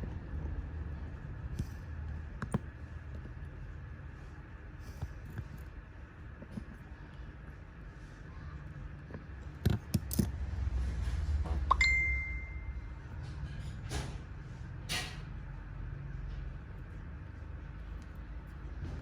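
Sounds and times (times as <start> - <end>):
short ringing ding: 11.7 - 12.7.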